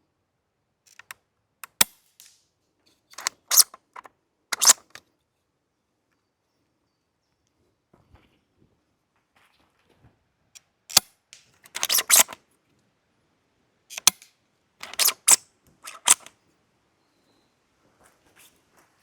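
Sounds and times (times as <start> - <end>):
rifle bolt clicking and clattering: 0.9 - 1.9, 3.2 - 5.0, 11.6 - 12.4, 13.9 - 16.3.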